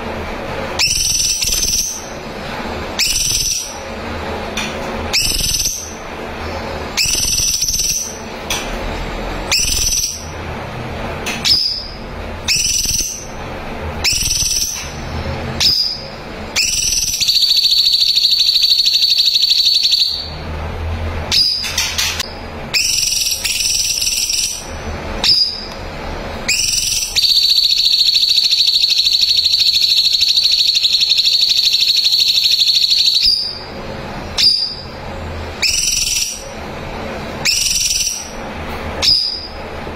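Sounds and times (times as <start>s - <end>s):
bird sharp high calls: 0.8s - 2.1s, 3.0s - 3.8s, 5.1s - 6.0s, 7.0s - 8.2s, 9.5s - 10.3s, 11.4s - 13.3s, 14.0s - 15.0s, 35.6s - 36.5s
bird long high trill: 15.6s - 20.4s, 26.5s - 33.7s.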